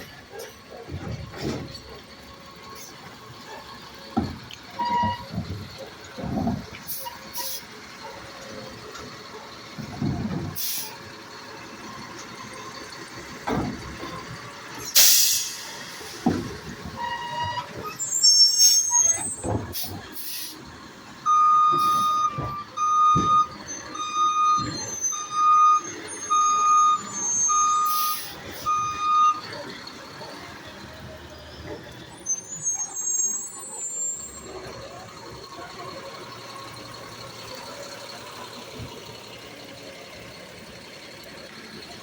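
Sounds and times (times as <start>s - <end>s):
garbage truck knocks and clanks: 0.0s - 7.4s, 8.0s - 15.3s, 16.0s - 20.2s, 21.3s - 27.8s, 34.2s - 42.0s
reversing alarm beeping: 4.8s - 5.5s, 21.2s - 29.6s
high squeal: 17.1s - 19.5s, 31.6s - 34.8s.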